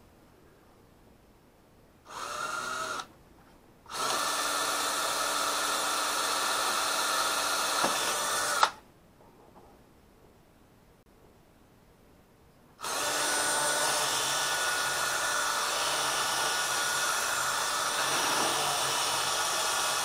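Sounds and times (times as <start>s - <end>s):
power drill boring fiberglass: 2.1s - 3.1s, 3.9s - 8.8s, 12.8s - 20.0s.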